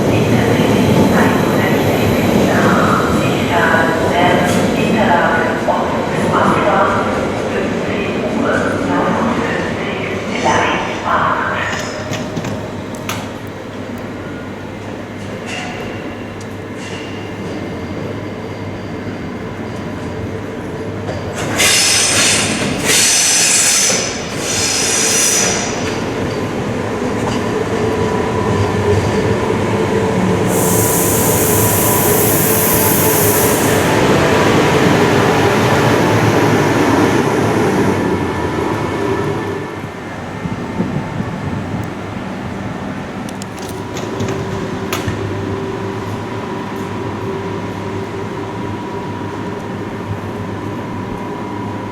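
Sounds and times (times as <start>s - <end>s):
electric train rumble: 0.0s - 51.9s
high hiss: 30.5s - 33.9s.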